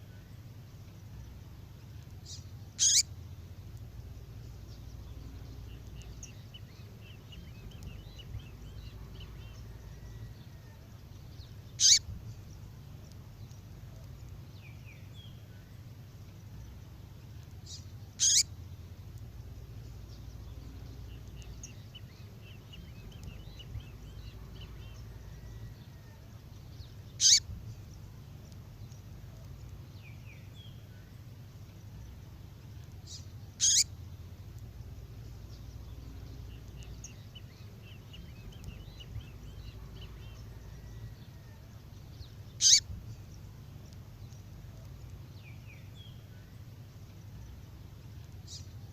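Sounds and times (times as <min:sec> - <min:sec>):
soft twittering chirps: 0:00.0 - 0:48.9
songbird short sharp call: 0:02.8 - 0:03.1, 0:11.8 - 0:12.0, 0:18.2 - 0:18.4, 0:27.2 - 0:27.4, 0:33.6 - 0:33.9, 0:42.6 - 0:42.9.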